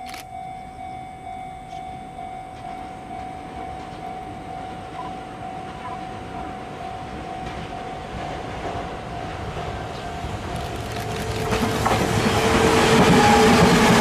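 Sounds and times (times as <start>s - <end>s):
high pulsing tone: 0.0s - 8.3s
electric train approaching: 0.1s - 14.0s.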